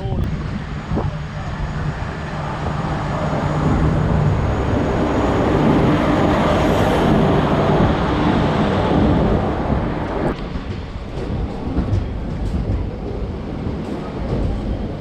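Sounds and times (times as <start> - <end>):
train rolling along tracks: 0.0 - 15.0.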